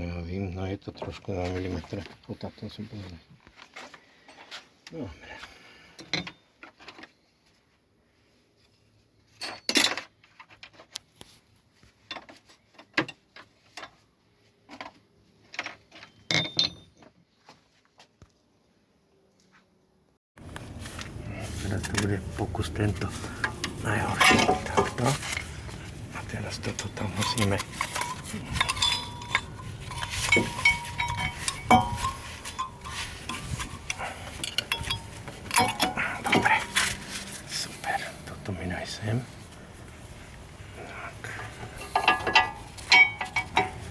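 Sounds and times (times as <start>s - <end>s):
metal tools clinking and knocking: 9.4s - 10.5s, 15.6s - 17.1s, 20.7s - 38.3s, 40.8s - 43.9s
metallic ringing tones: 22.5s - 40.2s, 40.8s - 43.9s.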